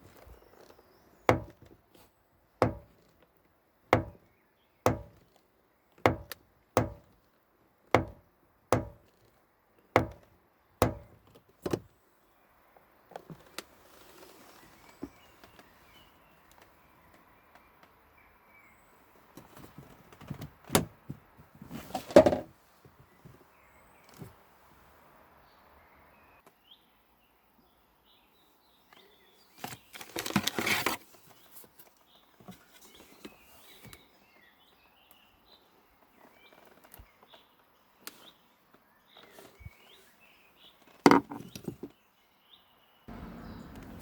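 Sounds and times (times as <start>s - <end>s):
knocking on car door: 1.3s - 1.7s, 2.6s - 3.0s, 4.0s - 4.3s, 4.9s - 5.2s, 6.1s - 7.1s, 8.0s - 8.2s, 8.8s - 9.1s, 10.0s - 11.2s.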